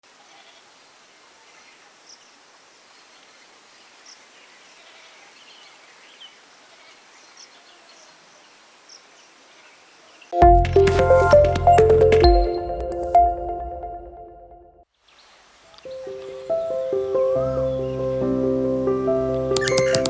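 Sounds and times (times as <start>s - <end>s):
faint short high chirps: 19.6s - 20.0s.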